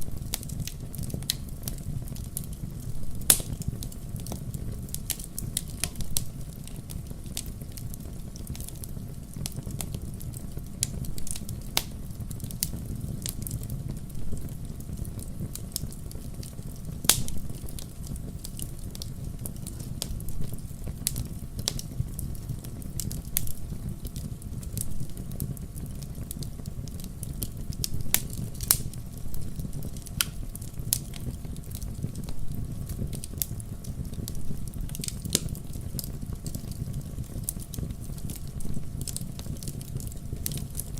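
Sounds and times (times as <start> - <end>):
fire flames rumbling: 0.0 - 40.9
logs crackling and popping: 0.0 - 40.9.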